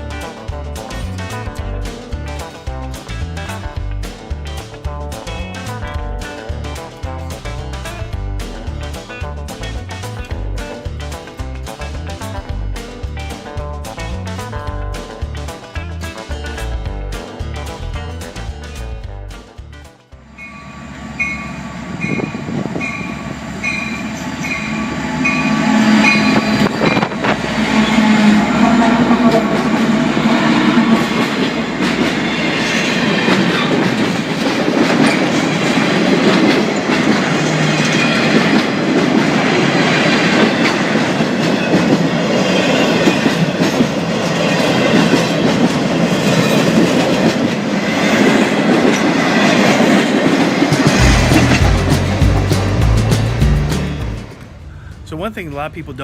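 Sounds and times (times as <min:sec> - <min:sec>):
train clattering past: 0:20.3 - 0:56.0.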